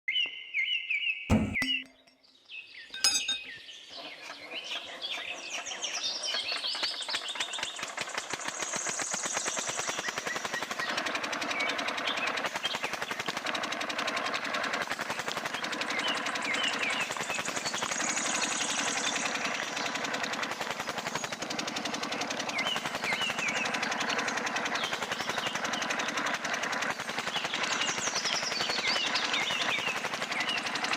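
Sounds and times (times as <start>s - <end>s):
knock: 1.3s - 2.0s
model engine clicking and rattling: 5.6s - 30.9s.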